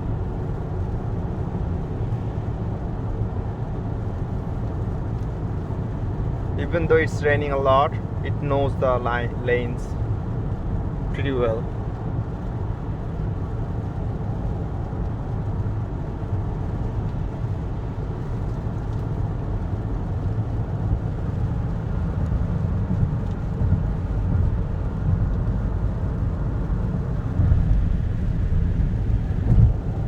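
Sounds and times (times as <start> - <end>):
tyre and road rumble: 14.6 - 30.0.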